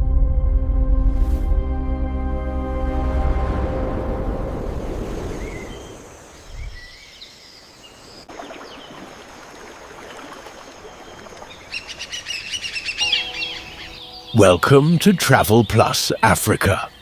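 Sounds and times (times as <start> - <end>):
music: 0.0 - 4.7, 13.0 - 15.6
birds chirping and whistling: 11.8 - 17.0.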